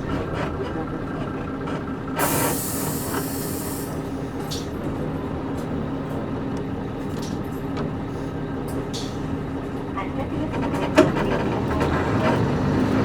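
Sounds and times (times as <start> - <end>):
bus diesel engine hum: 0.0 - 13.0
compressed air hiss: 2.2 - 4.0.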